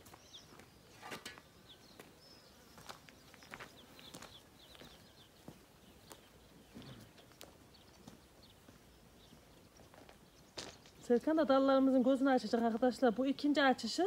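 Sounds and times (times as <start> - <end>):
distant small birds chirping: 0.0 - 14.0.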